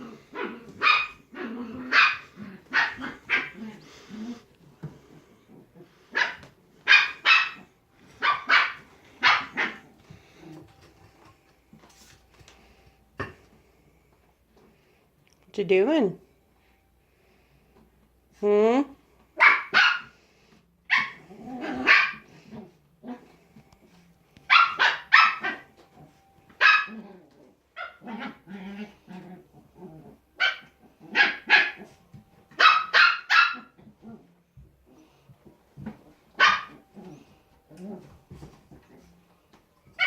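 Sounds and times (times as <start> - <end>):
puppy growling: 0.0 - 6.2, 9.1 - 11.2, 21.0 - 23.8, 25.4 - 32.0, 33.5 - 35.2, 35.9 - 39.4
puppies barking: 0.1 - 4.1, 6.0 - 10.4, 19.4 - 20.2, 20.9 - 22.5, 24.5 - 29.1, 30.4 - 33.8, 36.3 - 37.4.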